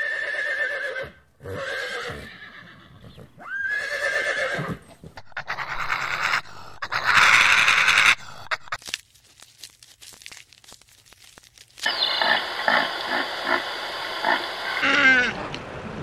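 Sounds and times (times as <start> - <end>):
horse whinnying: 0.0 - 6.4.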